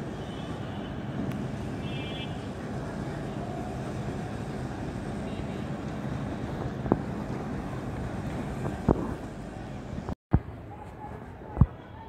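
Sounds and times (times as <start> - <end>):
train rumbling on elevated track: 1.0 - 10.2.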